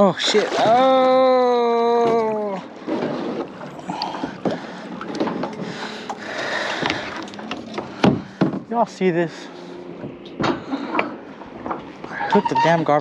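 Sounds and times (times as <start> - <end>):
water splashing around kayak: 0.0 - 10.0
gear knocking against hull: 2.0 - 9.0.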